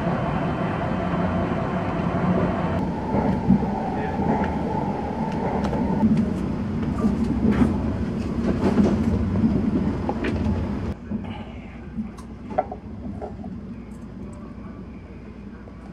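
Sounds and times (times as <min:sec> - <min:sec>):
train cabin rumble: 0:00.1 - 0:11.4.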